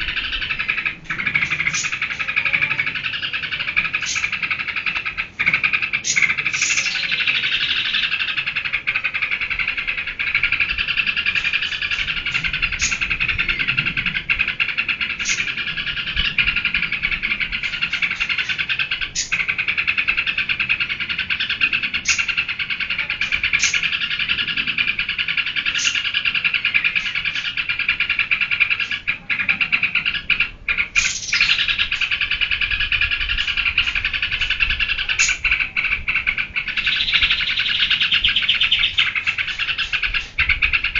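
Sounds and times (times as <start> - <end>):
bulbul chattering song: 0.0 - 40.9
sharp high bird chirps: 36.6 - 40.4.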